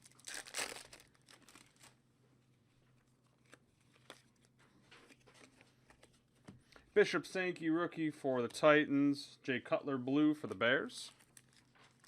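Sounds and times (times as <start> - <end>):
cards and wrappers rustling: 0.0 - 2.0, 2.9 - 7.0, 10.4 - 12.0
wrapper tearing open: 0.0 - 2.0, 11.1 - 12.0.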